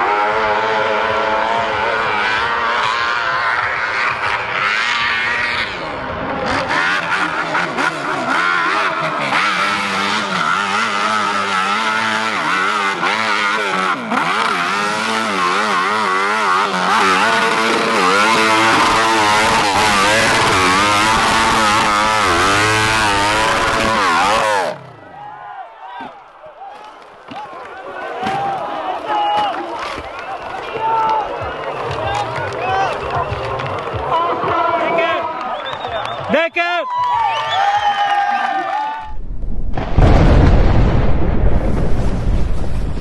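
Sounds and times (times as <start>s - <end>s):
motorcycle engine revving: 0.0s - 25.2s.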